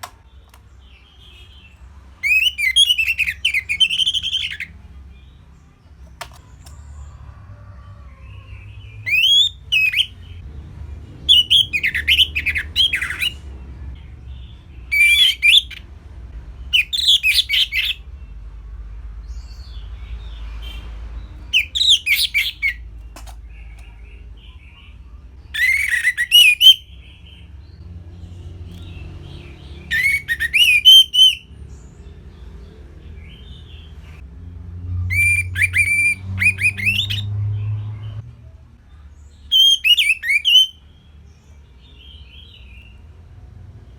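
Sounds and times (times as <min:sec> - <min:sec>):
thrush singing whistles and trills: 0:02.2 - 0:04.7, 0:08.9 - 0:10.4, 0:11.3 - 0:13.5, 0:14.9 - 0:15.8, 0:16.7 - 0:18.0, 0:21.5 - 0:22.8, 0:25.5 - 0:27.4, 0:29.9 - 0:31.5, 0:35.0 - 0:37.3, 0:39.5 - 0:40.8.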